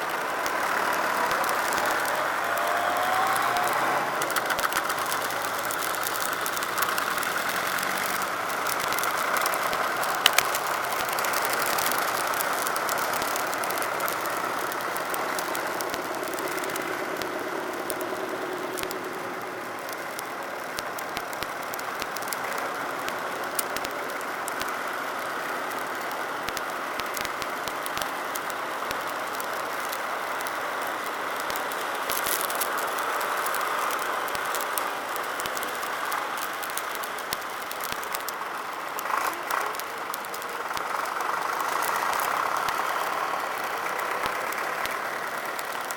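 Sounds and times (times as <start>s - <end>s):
rattles and small clicks: 0.0s - 45.9s
tractor engines running: 0.0s - 45.9s.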